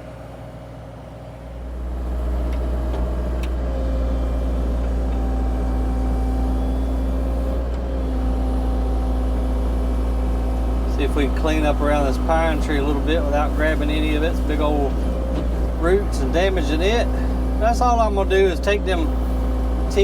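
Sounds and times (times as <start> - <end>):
excavator diesel engine droning: 0.0 - 20.0.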